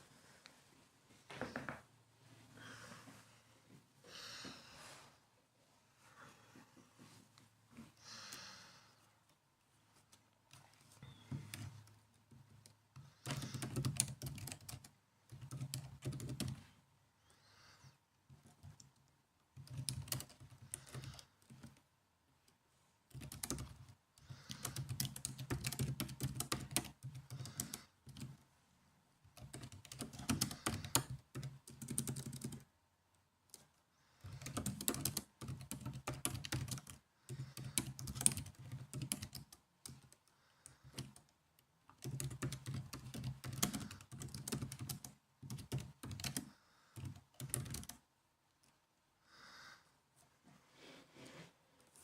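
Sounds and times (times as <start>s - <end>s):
typing on laptop keyboard: 10.5s - 16.7s, 18.3s - 21.9s, 23.1s - 28.4s, 29.3s - 32.7s, 33.5s - 48.0s.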